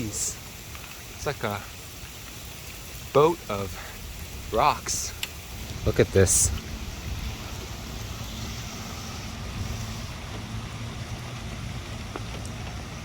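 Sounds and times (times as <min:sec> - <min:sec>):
wind buffeting microphone: 0:02.7 - 0:13.0.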